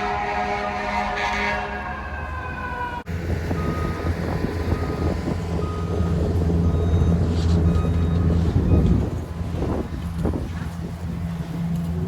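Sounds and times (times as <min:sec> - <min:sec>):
heavy vehicle engine rumble: 0:02.3 - 0:12.0
short beeps: 0:05.6 - 0:09.0.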